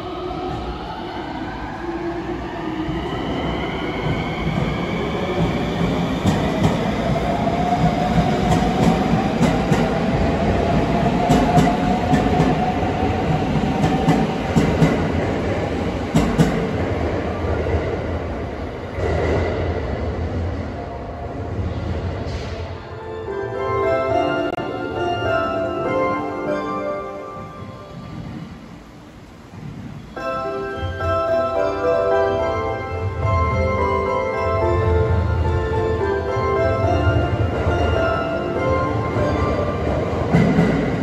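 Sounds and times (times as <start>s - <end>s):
train wheels clicking on rail joints: 4.0s - 15.2s, 16.1s - 16.8s.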